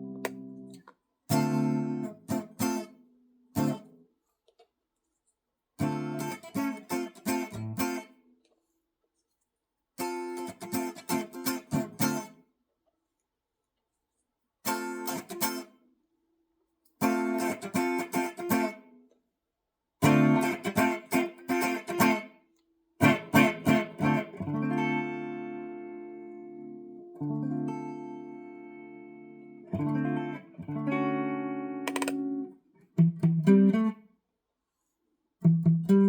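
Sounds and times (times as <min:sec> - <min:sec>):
clean electric guitar playing: 0:23.0 - 0:33.9.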